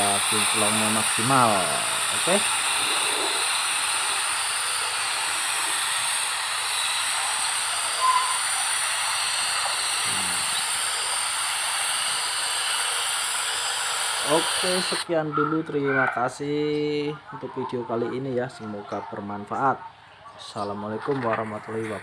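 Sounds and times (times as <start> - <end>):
paint spray gun hissing: 0.0 - 15.1.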